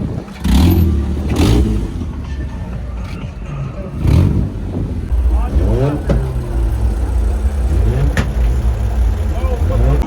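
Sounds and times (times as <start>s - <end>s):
car engine revving hard: 5.1s - 10.0s.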